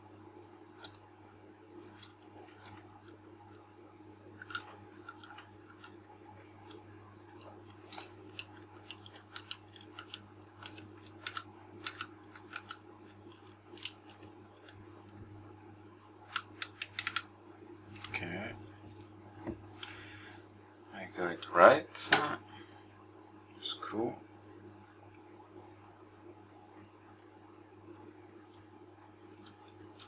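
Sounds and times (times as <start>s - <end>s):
faint steady hum: 0.0s - 30.0s
small metal parts clicking: 16.3s - 17.2s.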